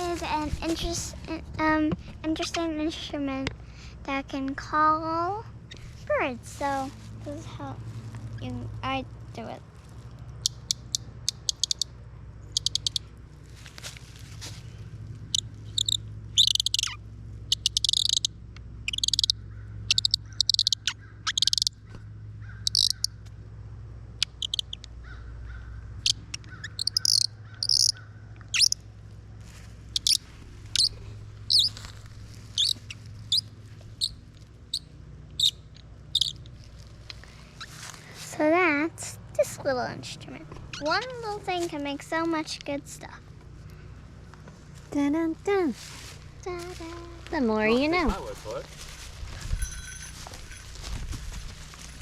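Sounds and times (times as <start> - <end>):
bird call squeaking chirps: 10.4 - 13.1, 15.3 - 21.8, 22.5 - 23.2, 24.2 - 24.9, 26.0 - 28.8, 29.9 - 31.8, 32.5 - 37.8, 40.7 - 41.0.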